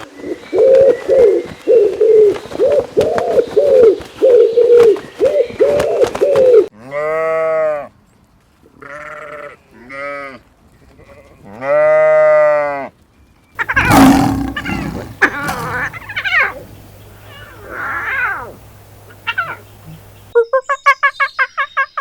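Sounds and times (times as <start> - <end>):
animal crying: 13.6 - 16.6
animal roar-like call: 13.6 - 16.7.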